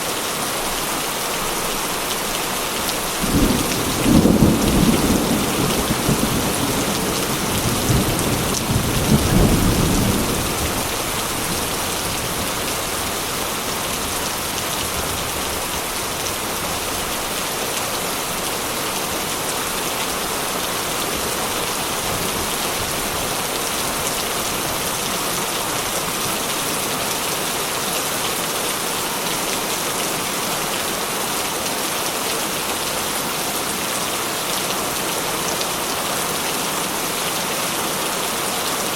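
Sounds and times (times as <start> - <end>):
heavy rain on a metal roof: 0.0 - 38.9
thunder rumble: 3.2 - 12.6.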